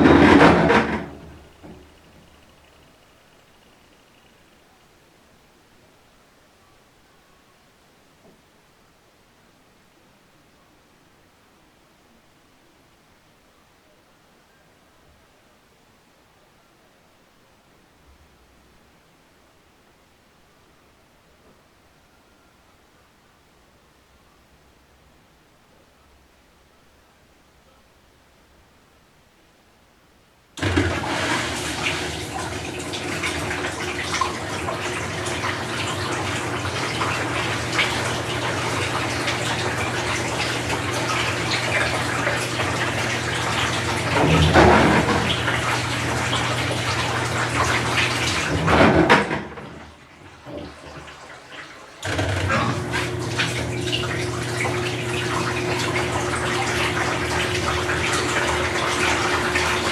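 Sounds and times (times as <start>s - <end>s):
water running in washing machine: 0.0s - 2.6s, 30.6s - 59.9s.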